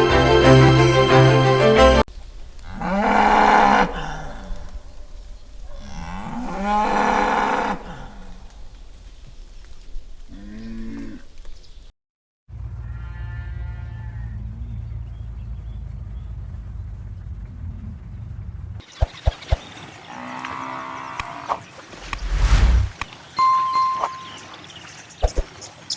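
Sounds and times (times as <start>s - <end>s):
music: 0.0s - 2.0s
cow mooing: 20.1s - 21.6s.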